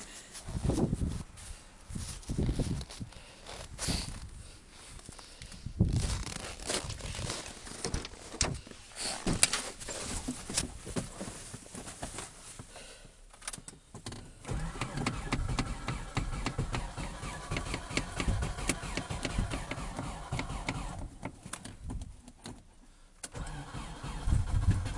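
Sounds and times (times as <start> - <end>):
cold car engine turning over: 14.4 - 21.4, 23.2 - 24.9.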